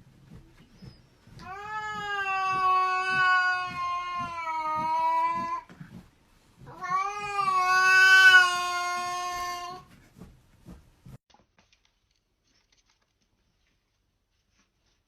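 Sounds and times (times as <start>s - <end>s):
cat yowling: 1.4s - 5.7s, 6.7s - 9.9s.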